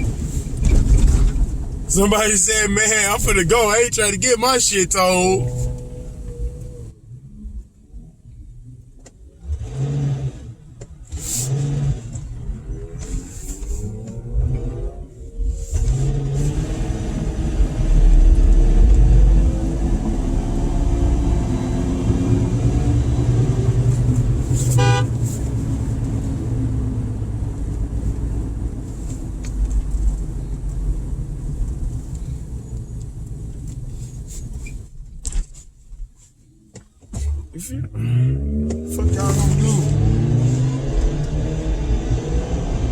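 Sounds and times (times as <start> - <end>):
car engines revving: 0.0 - 7.2, 9.0 - 32.0, 37.1 - 42.9
car horn honk: 1.9 - 6.2, 24.7 - 25.2.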